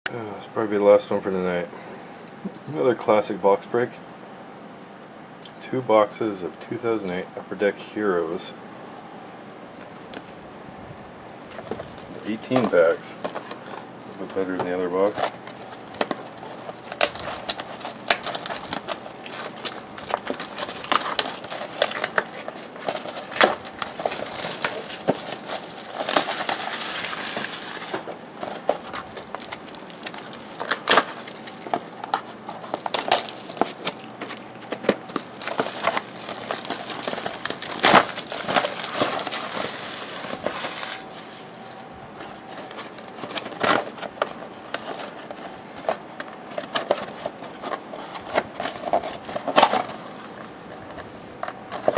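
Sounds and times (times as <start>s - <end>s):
wrappers and cardboard crinkling: 11.3s - 51.9s
sharp clicks and crackles: 15.1s - 40.4s.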